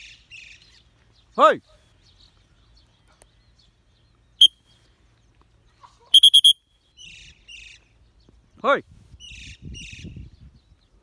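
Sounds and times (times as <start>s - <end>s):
shrill bird chirps: 4.3s - 4.8s, 6.0s - 7.8s.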